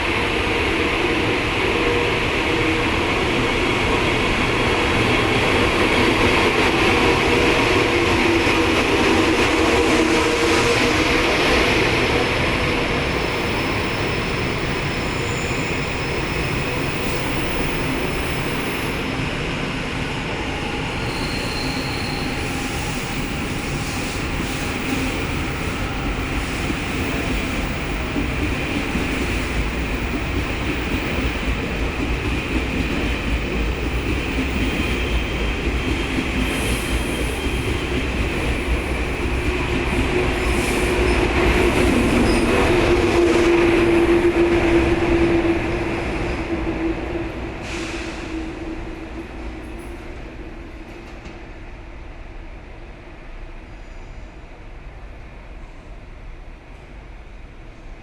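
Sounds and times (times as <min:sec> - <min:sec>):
train wheels rumbling on rails: 0:00.0 - 0:52.0
wheel squeal: 0:21.0 - 0:22.5.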